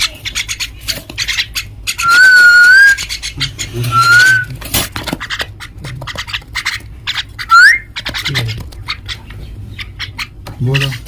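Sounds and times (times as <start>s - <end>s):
mynas harsh chirps: 1.9s - 4.5s, 7.1s - 8.0s.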